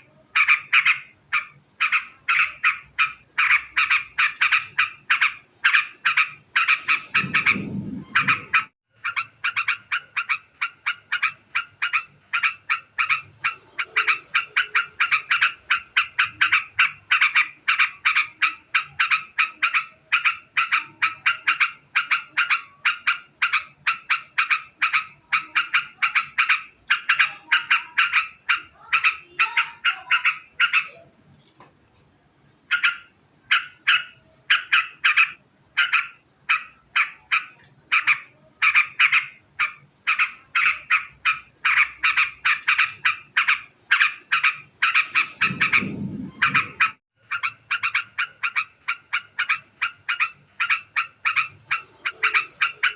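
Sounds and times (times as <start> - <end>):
bird fast chattering call: 0.0 - 31.0, 32.7 - 52.9
low rumble: 7.1 - 8.7, 45.1 - 47.0.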